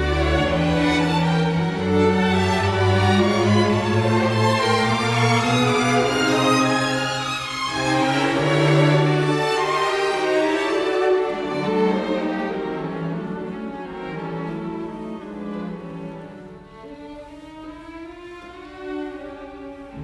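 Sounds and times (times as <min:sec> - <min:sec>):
violin and cello slow notes: 0:00.0 - 0:20.0.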